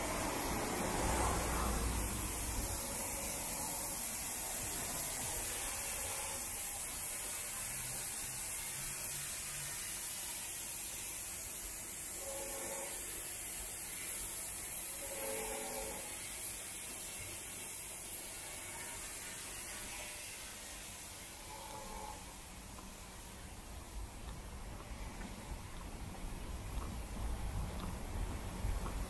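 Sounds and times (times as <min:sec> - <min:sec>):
car passing on wet road: 0:00.0 - 0:02.8
light rain hissing: 0:00.0 - 0:29.0.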